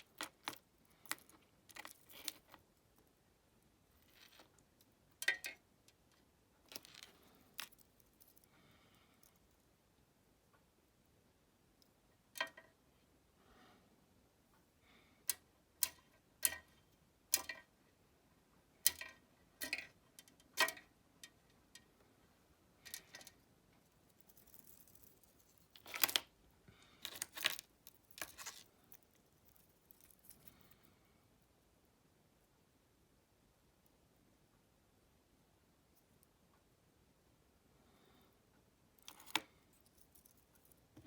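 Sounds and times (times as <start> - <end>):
small hard objects clicking: 0.0 - 2.7, 4.0 - 8.5, 24.1 - 30.8.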